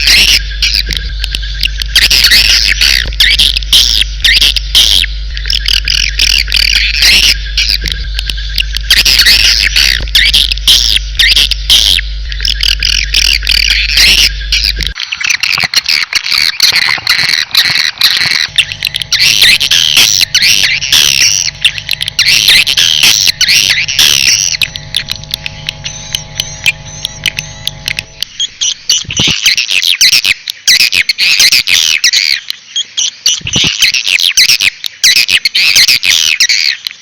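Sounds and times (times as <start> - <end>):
steady low hum: 0.0 - 29.4
birds chirping and squawking: 0.0 - 36.9.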